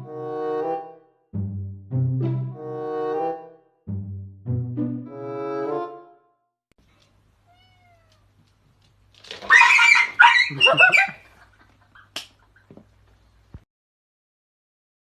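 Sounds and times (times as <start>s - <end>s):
faint ticks: 6.8s - 7.2s
cat meowing loudly: 7.5s - 8.4s, 9.4s - 10.9s.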